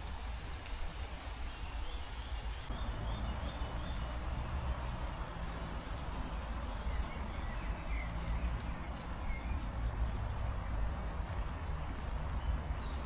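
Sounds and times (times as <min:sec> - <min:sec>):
footsteps on wet ground: 0:04.7 - 0:13.0.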